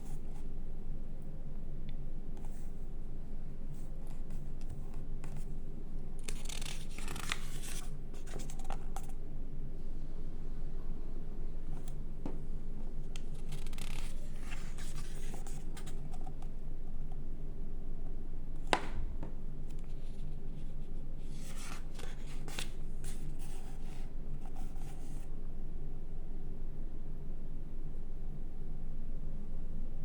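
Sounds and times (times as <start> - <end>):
steady low hum: 0.0 - 30.0
magazine pages turning: 6.2 - 9.1, 13.2 - 16.3, 21.3 - 24.0.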